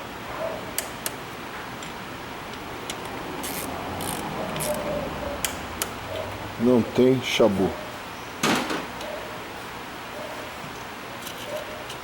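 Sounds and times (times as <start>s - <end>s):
ratchet wrench rasping: 3.4s - 5.6s.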